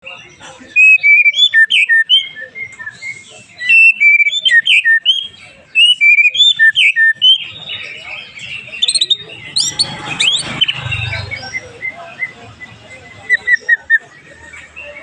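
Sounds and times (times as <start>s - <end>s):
bird singing whistled phrases: 0.8s - 15.0s.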